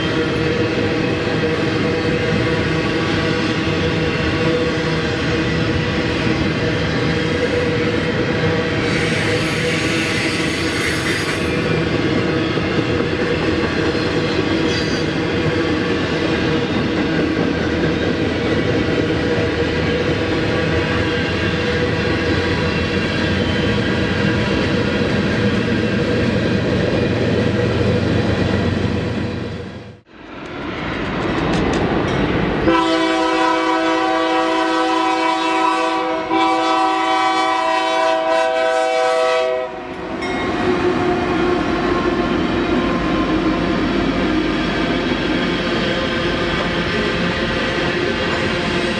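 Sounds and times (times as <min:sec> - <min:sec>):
freight train rolling past: 0:00.0 - 0:48.9
locomotive air horn blasts: 0:32.7 - 0:39.9.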